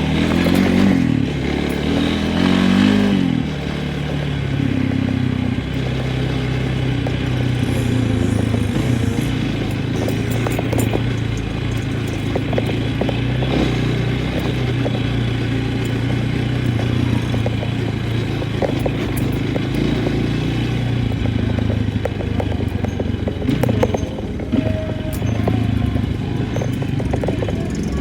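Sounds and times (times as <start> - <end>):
knocks and clatter: 0.0 - 28.0
vehicle engine under load: 0.0 - 28.0.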